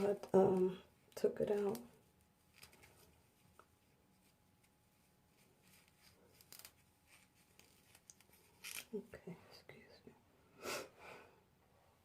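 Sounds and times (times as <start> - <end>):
faint rustles of hands working hair: 0.0 - 10.0.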